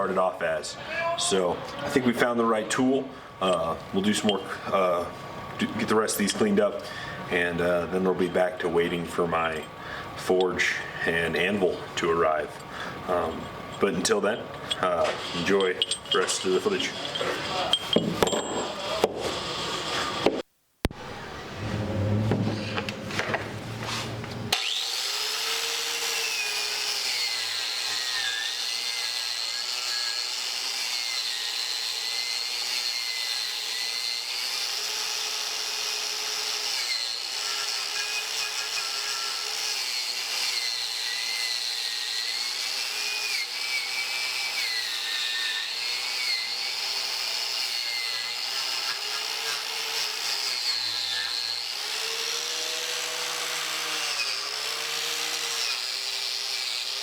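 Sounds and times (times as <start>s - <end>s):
wire brush scraping steel: 14.7s - 18.0s
power tool motor whine: 24.4s - 30.7s.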